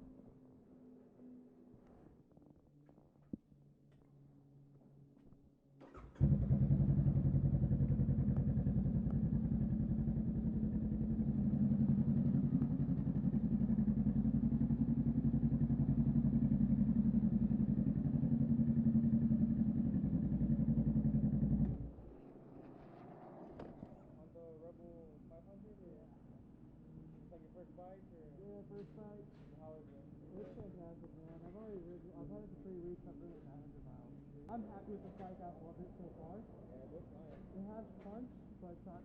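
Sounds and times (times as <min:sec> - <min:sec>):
motorcycle engine idling: 0:05.8 - 0:22.2.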